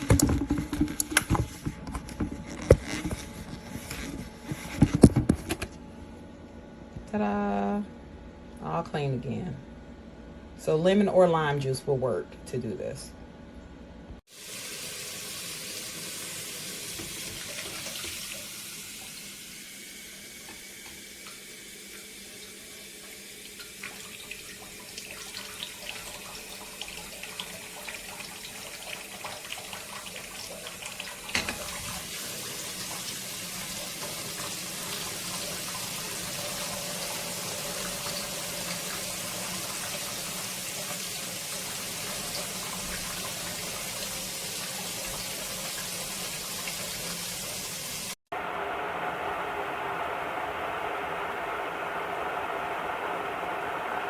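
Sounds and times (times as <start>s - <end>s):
kettle rushing hiss: 46.9s - 54.0s.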